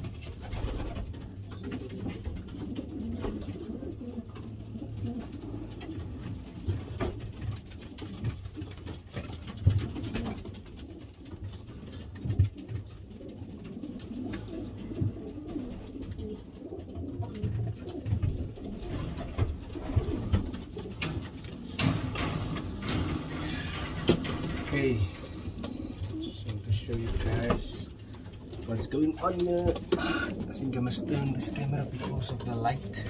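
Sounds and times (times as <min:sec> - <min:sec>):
pigeons cooing: 0:00.0 - 0:33.0
clicks and knocks: 0:19.4 - 0:26.6.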